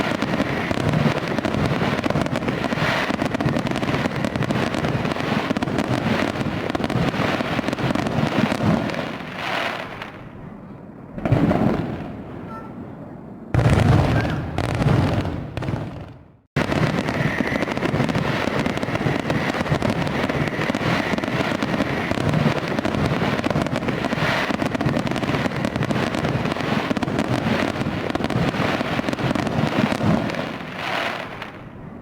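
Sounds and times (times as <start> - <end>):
fireworks crackling and popping: 0.0 - 10.4, 11.2 - 12.2, 13.5 - 31.8.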